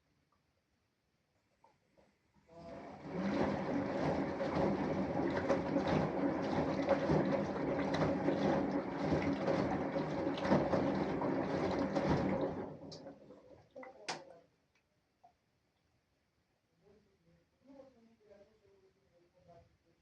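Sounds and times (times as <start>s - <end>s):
faint motor hum: 2.5s - 14.3s
washing machine water noise: 2.5s - 14.3s.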